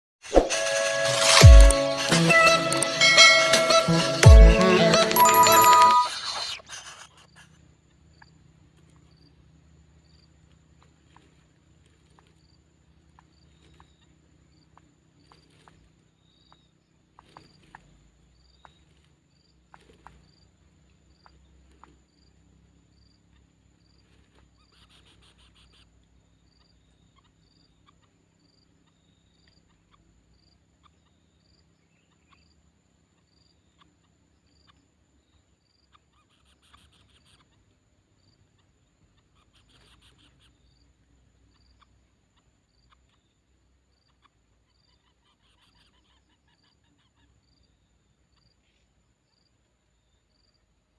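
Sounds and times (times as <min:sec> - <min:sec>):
scattered clicks: 0:01.3 - 0:03.0
insect chirp: 0:06.5 - 0:50.9.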